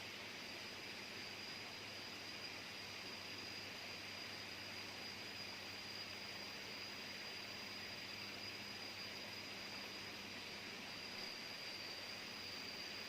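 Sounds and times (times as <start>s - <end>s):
faint high-pitched whine: 0.0s - 13.0s
jungle insects buzzing: 0.0s - 13.0s
soft hiss: 0.0s - 13.0s.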